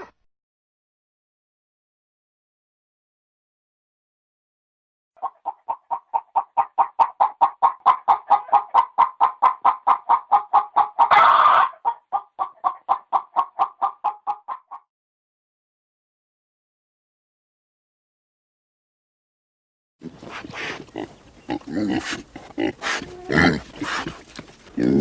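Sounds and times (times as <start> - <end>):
hen clucking: 5.2 - 14.9, 20.0 - 25.0
hen squawk: 20.0 - 24.2.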